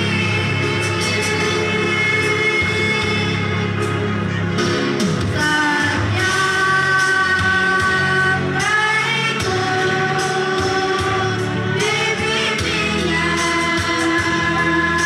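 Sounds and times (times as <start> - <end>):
children's choir singing held notes: 5.4 - 15.0.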